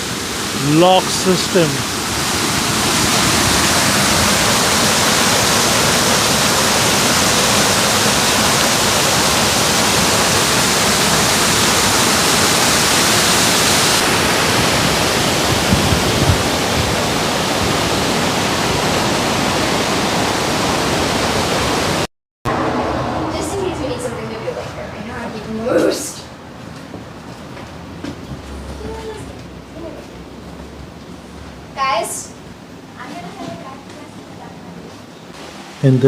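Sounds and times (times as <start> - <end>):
water rushing through dam: 0.0 - 22.7.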